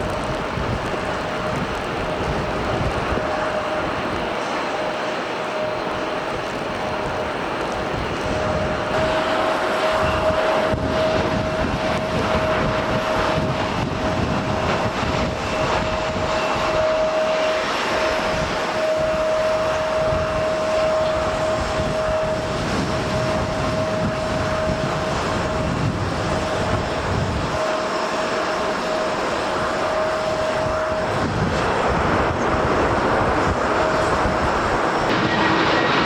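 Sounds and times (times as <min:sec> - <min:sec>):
jet engines running: 0:00.0 - 0:36.0.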